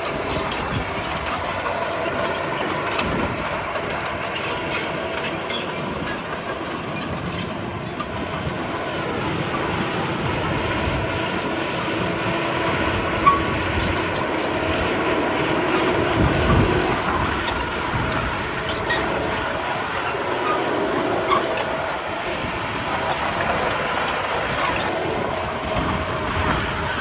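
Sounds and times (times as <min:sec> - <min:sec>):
bulldozer diesel engine running: 0:00.0 - 0:27.0
steel tracks clanking and squeaking: 0:00.0 - 0:27.0.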